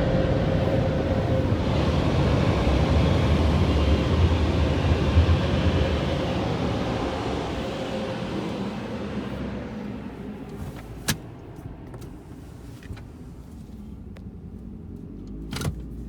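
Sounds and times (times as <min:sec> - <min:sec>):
air dryer blowers rumbling: 0:00.0 - 0:10.5.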